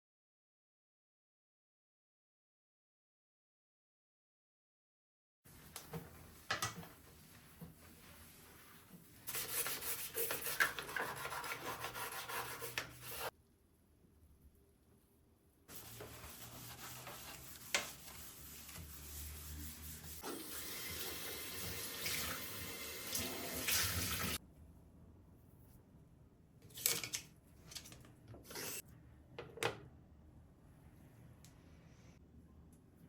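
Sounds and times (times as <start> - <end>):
tap water running into sink: 20.2 - 24.4.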